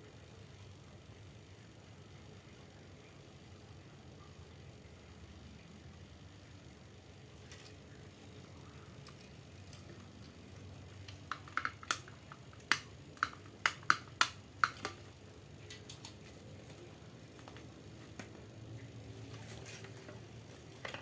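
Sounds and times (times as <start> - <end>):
sharp clicks of small hard parts: 9.0 - 15.1.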